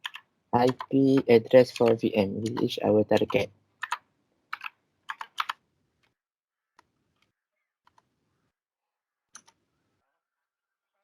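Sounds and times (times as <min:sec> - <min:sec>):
keyboard key presses: 0:00.0 - 0:05.6.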